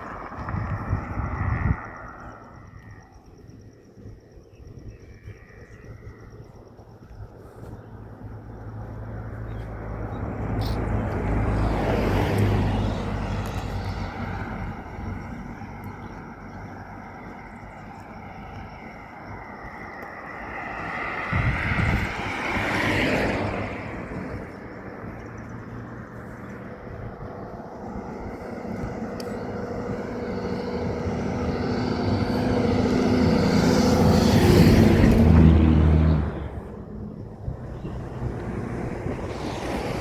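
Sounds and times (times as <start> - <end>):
vehicles passing: 0.0 - 4.2, 5.1 - 40.0
loud engine: 28.1 - 40.0.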